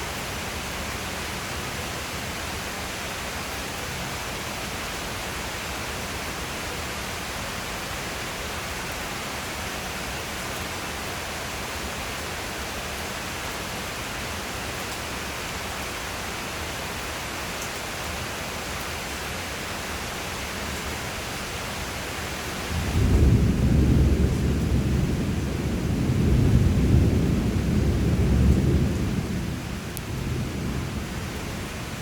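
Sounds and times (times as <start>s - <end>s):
steady rain: 0.0s - 32.0s
thunder rumbling: 22.7s - 32.0s.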